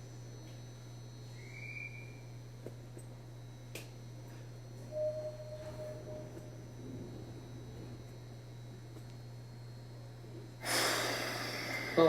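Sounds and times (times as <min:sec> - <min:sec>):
train carriage low hum: 0:01.2 - 0:12.0
short high tone: 0:04.9 - 0:06.3
beep-like tone: 0:04.9 - 0:06.5.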